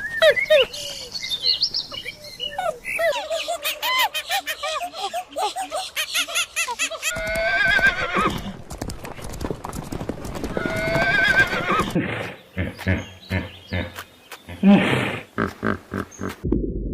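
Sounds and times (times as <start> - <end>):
horse whinnying: 7.2 - 8.6, 10.6 - 12.0.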